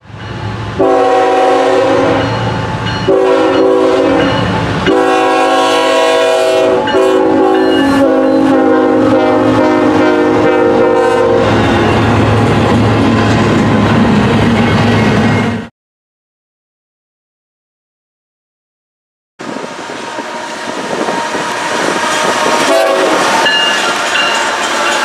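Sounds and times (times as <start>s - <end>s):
train rumbling past: 0.0s - 15.7s, 19.4s - 25.0s
locomotive air horn blasts: 0.8s - 2.5s, 3.1s - 12.0s, 19.6s - 24.2s.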